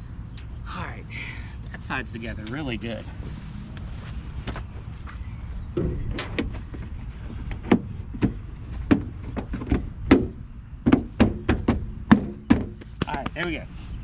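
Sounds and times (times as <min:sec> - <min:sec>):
steady low rumble: 0:00.0 - 0:14.0
car bumper knocking and clicking: 0:07.5 - 0:13.2.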